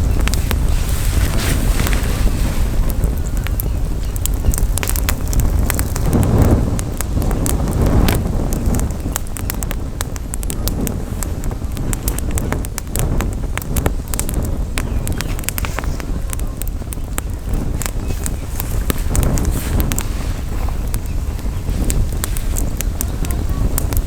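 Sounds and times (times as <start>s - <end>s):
campfire crackling and popping: 0.0s - 24.0s
wind rumble on microphone: 0.0s - 24.0s.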